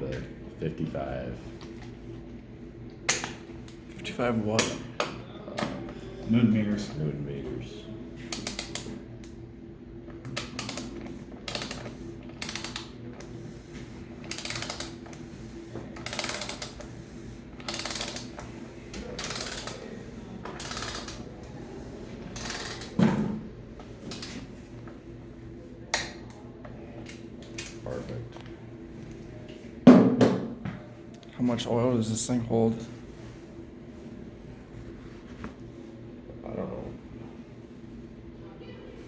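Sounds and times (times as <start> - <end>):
ratchet wrench clicking: 8.3 - 8.9, 10.4 - 10.9, 11.5 - 12.9, 14.3 - 15.0, 16.0 - 16.9, 17.6 - 18.4, 19.2 - 19.8, 20.6 - 21.2, 22.4 - 23.0.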